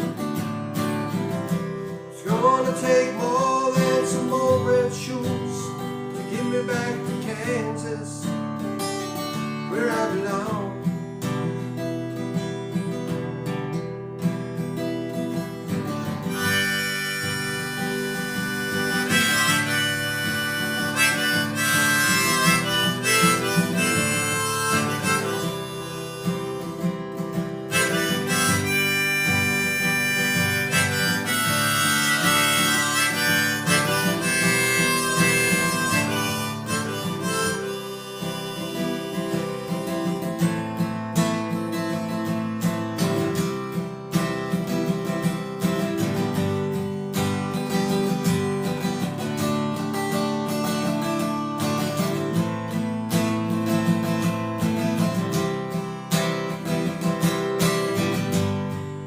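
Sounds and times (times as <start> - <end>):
harmonica solo: 0.0 - 13.2, 15.1 - 59.0
strummed acoustic guitar: 0.0 - 59.0.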